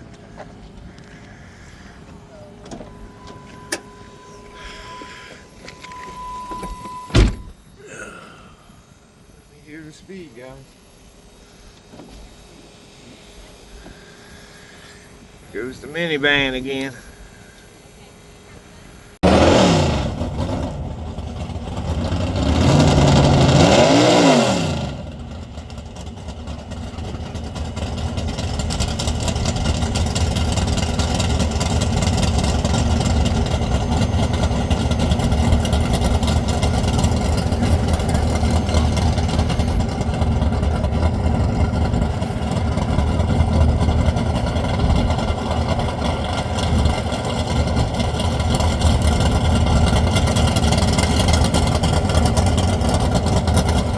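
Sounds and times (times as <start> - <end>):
race engine accelerating: 19.2 - 53.9.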